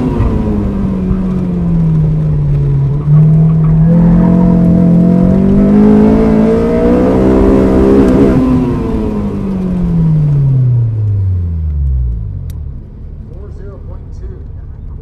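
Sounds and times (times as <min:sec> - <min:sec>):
car engine revving: 0:00.0 - 0:15.0
wind and road noise: 0:00.0 - 0:15.0.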